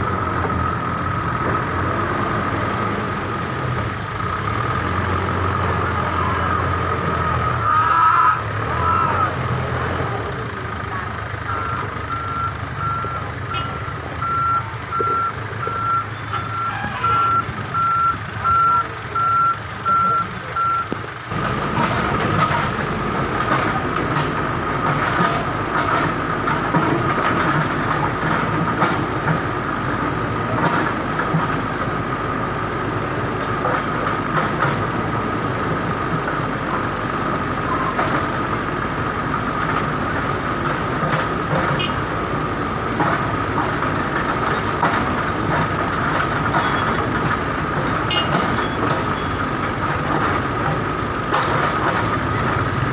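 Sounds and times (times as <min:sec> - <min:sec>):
heavy engines running: 0:00.0 - 0:52.9
traffic noise: 0:00.0 - 0:52.9
reversing alarm beeping: 0:11.5 - 0:21.0.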